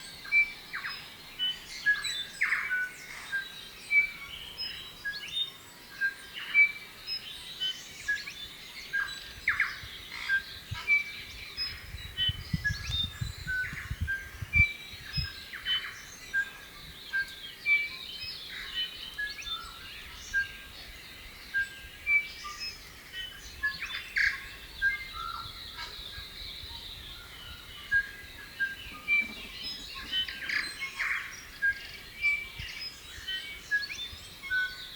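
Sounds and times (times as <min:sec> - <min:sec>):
bird singing ringing notes: 0:24.3 - 0:32.5.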